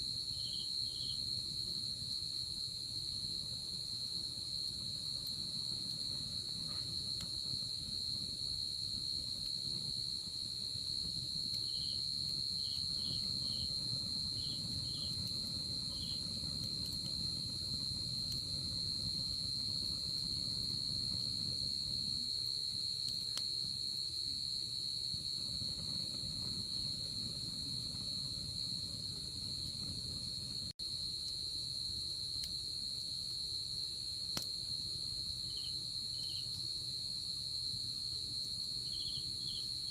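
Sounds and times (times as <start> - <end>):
crickets trilling: 0.0 - 39.9
short insect chirps: 11.4 - 17.4, 35.5 - 36.7, 38.8 - 39.9.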